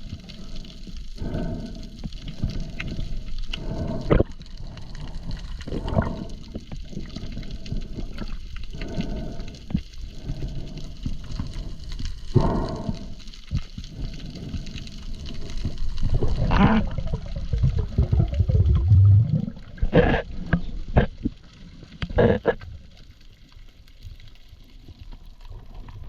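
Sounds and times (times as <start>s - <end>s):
water gurgling and sloshing: 0.0s - 26.0s
muffled water surge: 15.3s - 20.7s.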